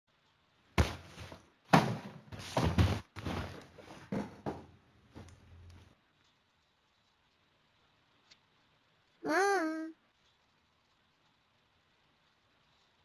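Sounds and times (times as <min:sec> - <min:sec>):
thumps and knocks: 0:00.8 - 0:05.3.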